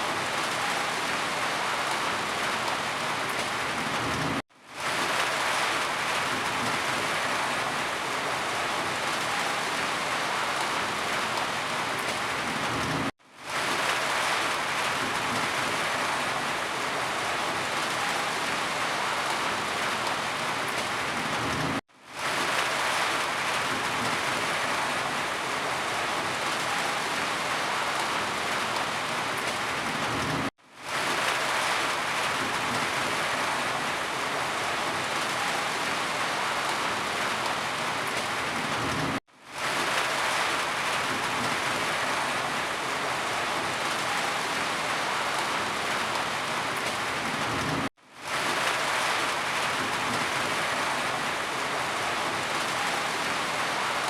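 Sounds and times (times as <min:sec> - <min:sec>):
heavy rainfall: 0:00.0 - 0:54.0.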